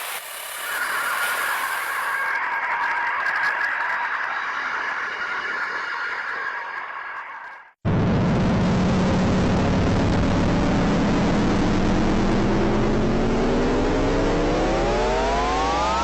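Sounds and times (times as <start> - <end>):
low hum: 7.9 - 16.0
rising tone: 7.9 - 16.0.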